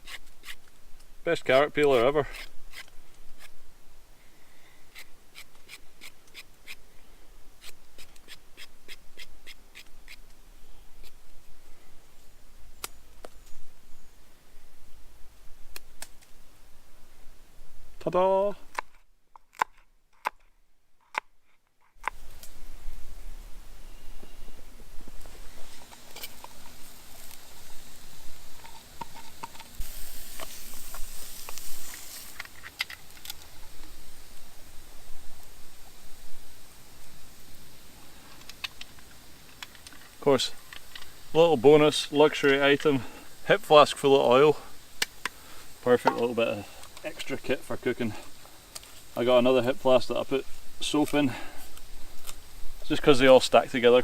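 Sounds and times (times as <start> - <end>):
campfire crackling: 0.0 - 13.6, 14.9 - 17.4, 22.0 - 54.0
knife scraping carrot skin: 1.5 - 3.5, 4.9 - 6.8
high hiss: 22.0 - 54.0.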